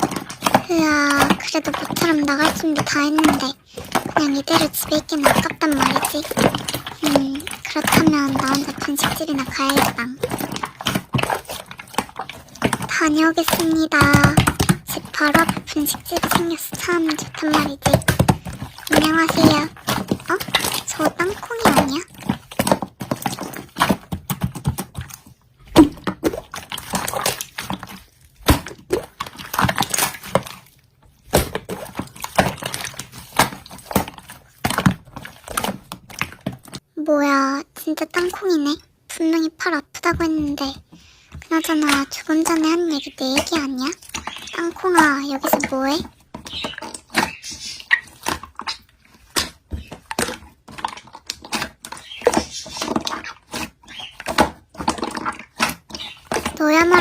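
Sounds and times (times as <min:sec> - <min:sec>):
slime squishing and clicking: 0:00.0 - 0:36.8, 0:41.4 - 0:57.0
slime squished by hand: 0:40.0 - 0:57.0.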